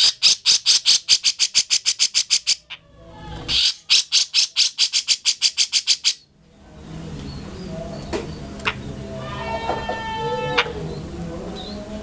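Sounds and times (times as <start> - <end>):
bird singing fast chattering notes: 0.0 - 2.7, 3.5 - 6.2.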